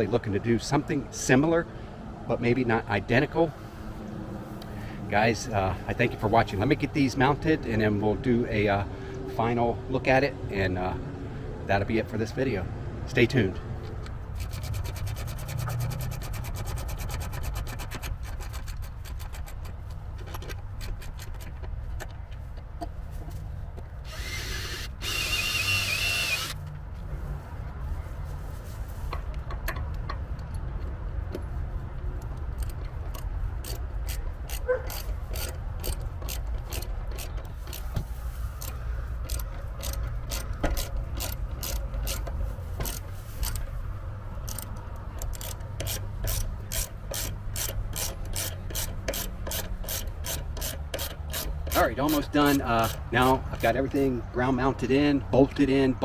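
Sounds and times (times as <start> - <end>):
ratchet wrench clicking: 14.4 - 19.7, 24.1 - 26.6, 32.5 - 37.9, 38.6 - 43.6, 44.4 - 53.4.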